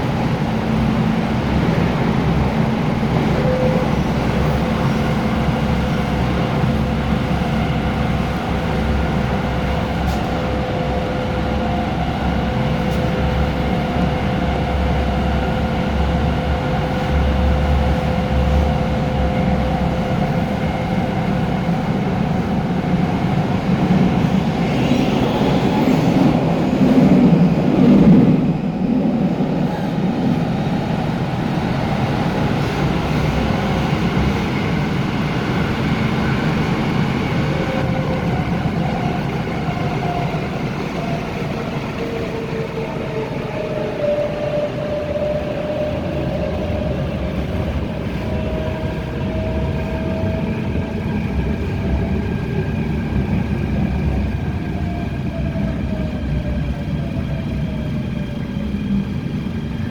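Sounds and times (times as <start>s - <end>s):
train rail rumble: 0.0s - 59.9s.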